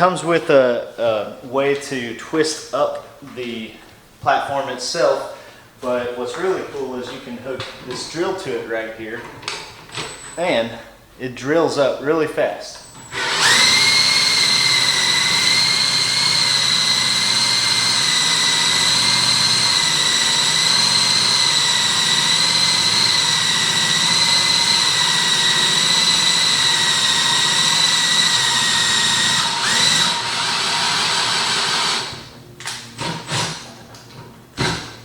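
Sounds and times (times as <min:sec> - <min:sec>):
power drill whining: 0:13.0 - 0:32.3, 0:33.0 - 0:33.7.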